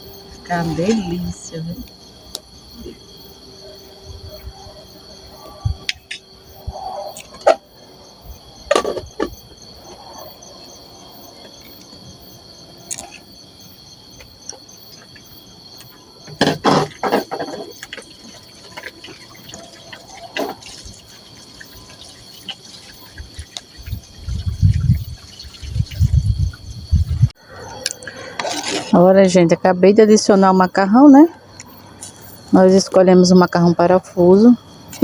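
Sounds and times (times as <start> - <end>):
crickets chirping: 0.0 - 35.0.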